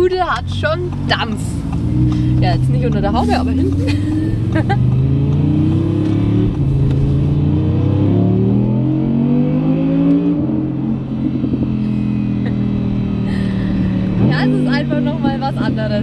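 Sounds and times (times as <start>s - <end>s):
sports car engine accelerating: 0.0s - 16.0s.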